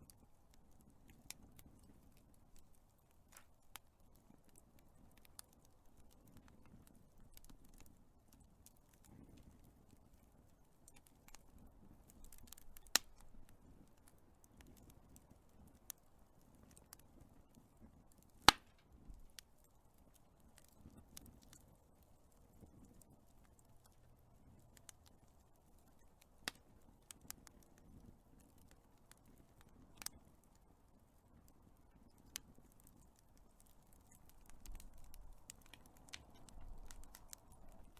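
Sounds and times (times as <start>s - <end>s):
fire pops and snaps: 0.0s - 37.9s
wood fire crackling: 0.0s - 37.9s.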